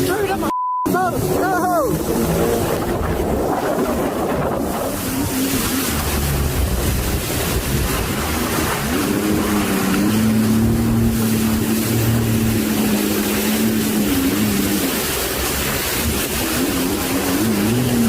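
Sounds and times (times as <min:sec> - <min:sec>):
motorboat engine: 0:00.0 - 0:18.0
wind and waves: 0:00.0 - 0:18.0.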